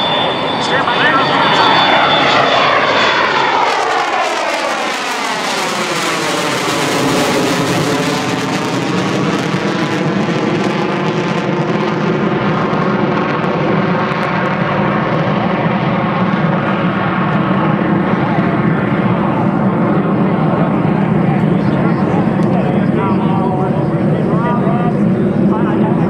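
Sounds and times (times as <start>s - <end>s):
jet engines rumbling: 0.0s - 26.0s.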